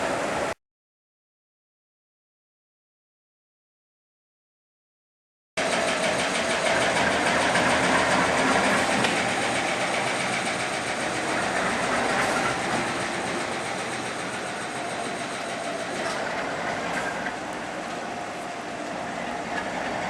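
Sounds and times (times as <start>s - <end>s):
diesel locomotive engine running: 0.0s - 0.5s, 5.6s - 20.0s.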